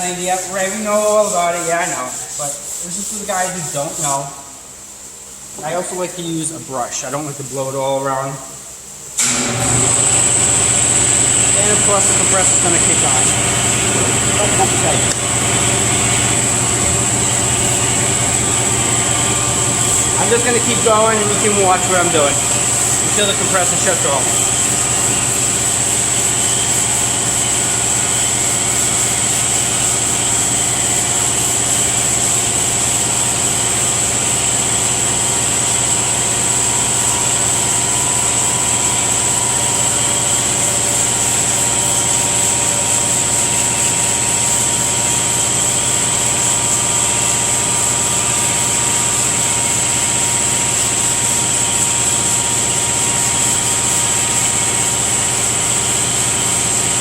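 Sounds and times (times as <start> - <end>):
constant high whine: 9.2 - 44.8
air compressor motor drone: 9.2 - 57.0.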